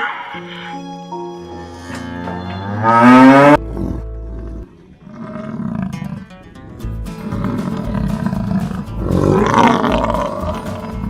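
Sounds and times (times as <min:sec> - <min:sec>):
large animal roaring: 0:02.6 - 0:06.4, 0:07.2 - 0:11.0
background music with a beat: 0:06.8 - 0:11.0.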